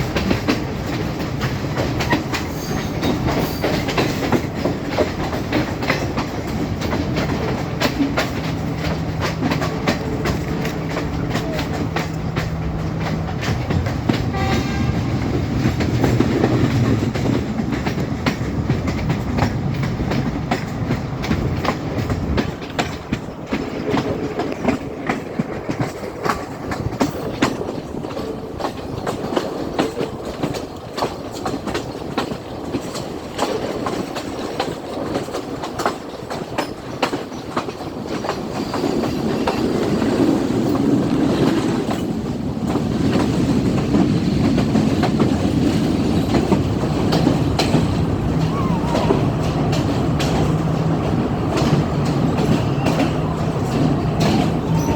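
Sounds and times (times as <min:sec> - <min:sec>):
train rumble: 0:00.0 - 0:54.9
train wheels clicking over rail joints: 0:00.0 - 0:54.9.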